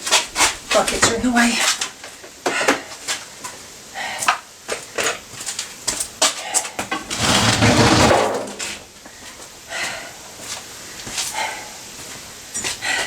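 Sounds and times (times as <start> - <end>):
knocks and clatter of objects: 6.9 - 8.8
scraping rumble: 7.0 - 8.7.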